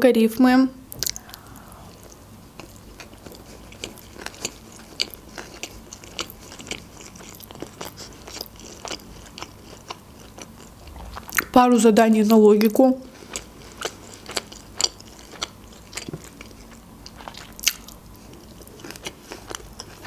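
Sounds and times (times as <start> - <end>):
wet mouth clicks: 0.9 - 4.0
woman chewing food: 0.9 - 11.6, 13.1 - 20.0.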